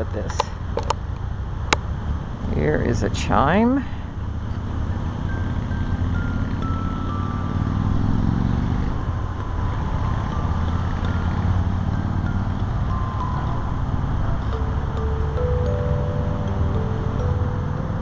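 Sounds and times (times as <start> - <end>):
chime notes stepping down: 4.8 - 18.0
steady low rumble: 8.8 - 18.0.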